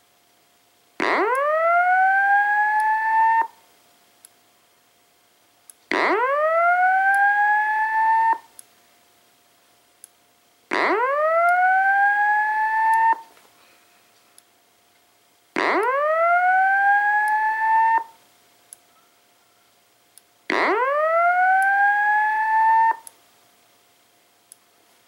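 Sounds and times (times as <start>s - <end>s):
fire alarm whoop tone: 1.0s - 3.6s, 5.9s - 8.5s, 10.7s - 13.3s, 15.6s - 18.2s, 20.5s - 23.1s.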